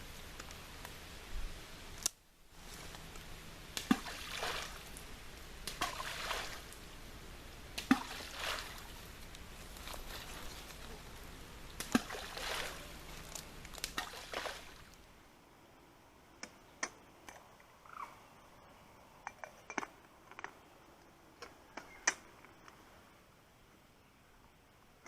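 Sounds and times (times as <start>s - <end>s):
water splashing and sloshing: 2.5s - 15.2s.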